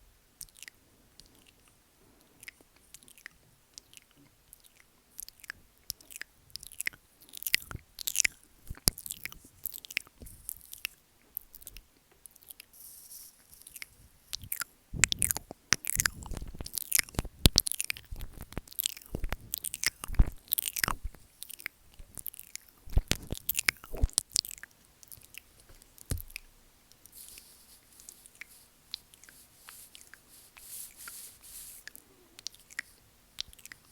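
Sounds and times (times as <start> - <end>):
mouth sounds on microphone: 14.3 - 21.3, 22.8 - 24.2.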